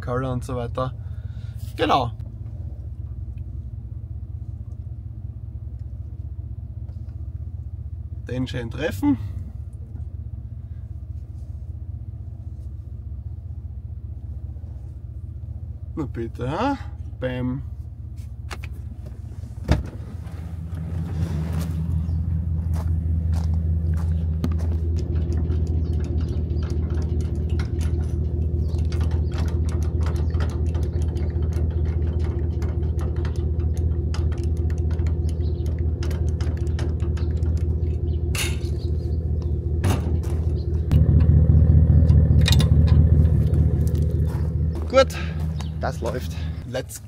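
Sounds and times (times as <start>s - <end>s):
heavy machine engine running: 18.8s - 46.9s
clicks and knocks: 24.4s - 41.4s, 42.0s - 44.8s.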